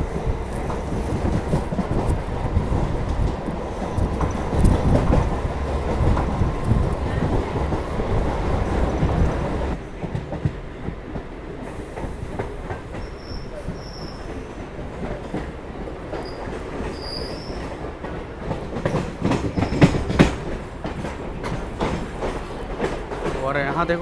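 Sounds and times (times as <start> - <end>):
rail-joint clacks: 0.0 - 24.0
wheels rumbling on rail: 0.0 - 24.0
high wheel squeals: 13.0 - 14.3.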